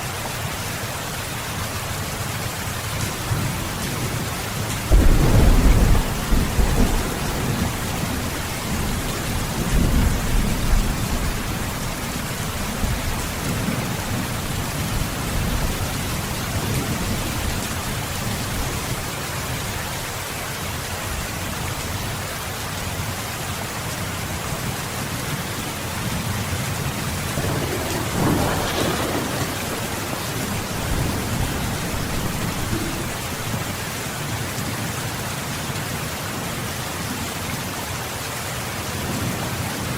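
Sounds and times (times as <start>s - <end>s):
steady rain: 0.0s - 39.9s
rolling thunder: 3.2s - 19.0s, 26.8s - 33.9s.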